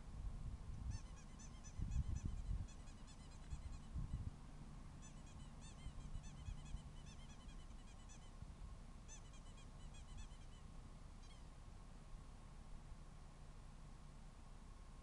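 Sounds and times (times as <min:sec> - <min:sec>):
faint bird calls: 0:00.9 - 0:04.2, 0:05.0 - 0:08.4, 0:09.1 - 0:11.5.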